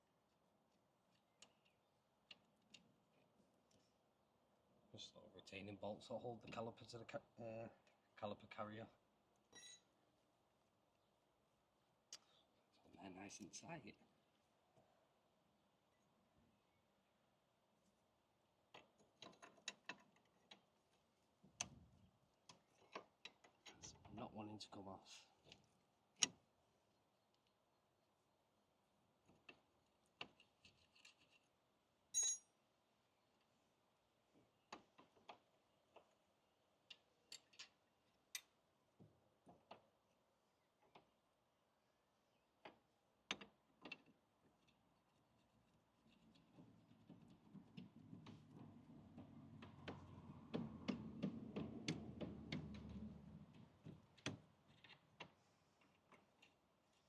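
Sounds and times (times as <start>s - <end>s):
ringing metal clink: 9.6s - 9.8s, 32.2s - 32.5s
metallic clicks and knocks of tools: 18.7s - 20.6s, 36.8s - 38.5s.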